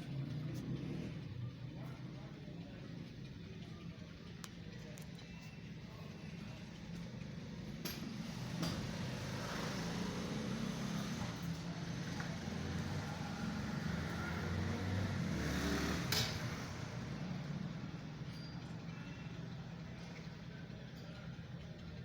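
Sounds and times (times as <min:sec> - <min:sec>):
vehicle engine and road rumble: 0:00.0 - 0:22.0.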